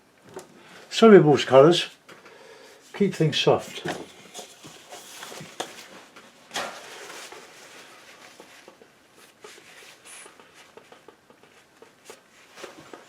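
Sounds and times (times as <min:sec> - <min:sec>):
painting knife scraping canvas: 0:06.5 - 0:13.0.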